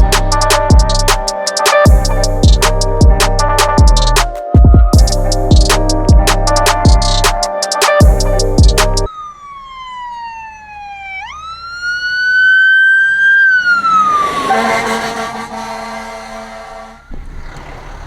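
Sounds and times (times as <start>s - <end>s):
wailing siren: 8.0s - 18.0s
train horn blast: 14.4s - 17.1s.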